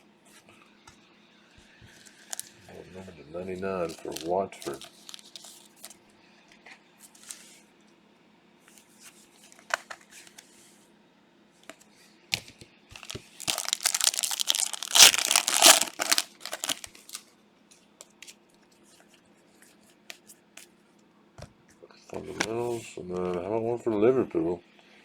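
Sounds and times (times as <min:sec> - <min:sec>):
plastic wrapper ripping: 0:03.8 - 0:05.5, 0:13.0 - 0:17.2.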